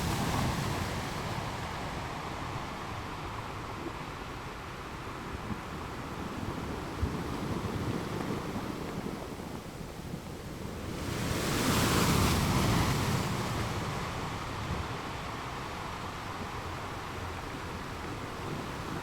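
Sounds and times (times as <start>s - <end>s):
sea waves crashing on rocks: 7.7s - 16.0s.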